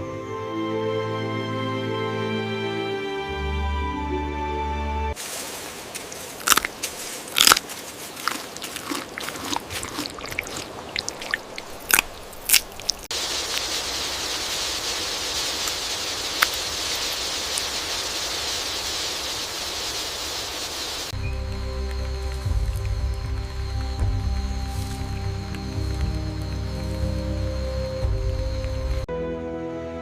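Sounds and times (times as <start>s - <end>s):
music: 0.0s - 5.2s, 21.2s - 30.0s
steady hiss: 5.2s - 8.2s, 13.0s - 29.1s
crunching and cracking: 5.9s - 13.1s.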